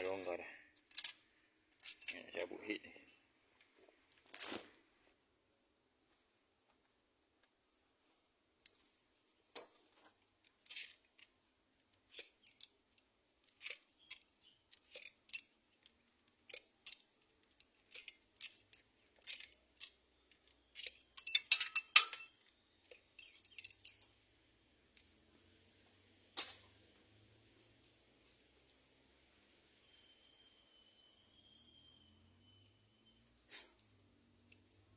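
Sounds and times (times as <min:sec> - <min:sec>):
metal tools clinking and rattling: 0:00.0 - 0:02.4, 0:09.6 - 0:28.8.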